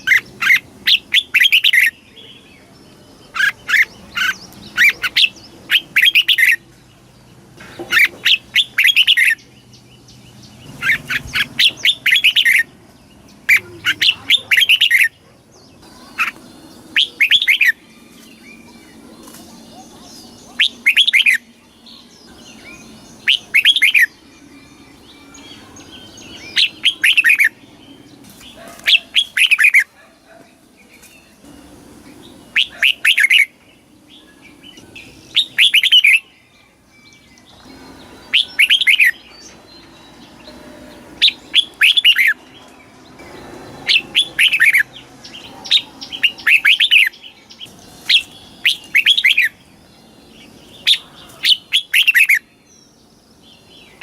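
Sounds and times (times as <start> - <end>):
bulbul whistled song: 20.5 - 27.6, 34.2 - 42.4, 45.7 - 49.7, 50.4 - 52.5.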